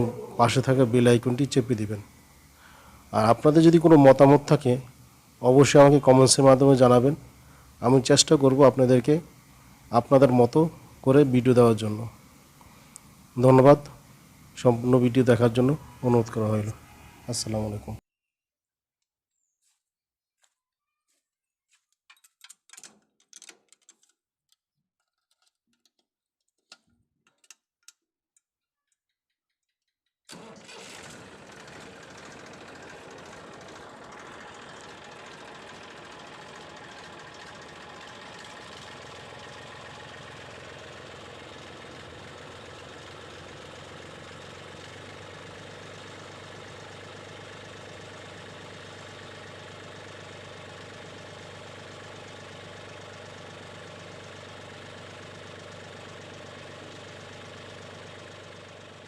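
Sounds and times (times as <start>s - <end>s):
diesel tractor engine idling: 0.0s - 18.0s, 30.3s - 59.0s
faint clicks and knocks: 21.7s - 29.8s.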